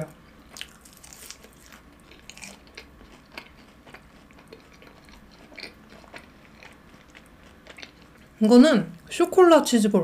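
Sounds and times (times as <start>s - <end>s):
chewing with wet clicks and smacks: 0.5s - 8.3s.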